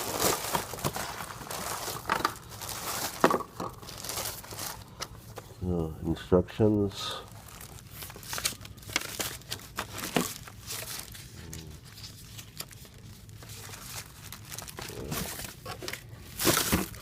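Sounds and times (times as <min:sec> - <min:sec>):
packaging crinkling and rustling: 0:00.0 - 0:05.6, 0:06.6 - 0:17.0.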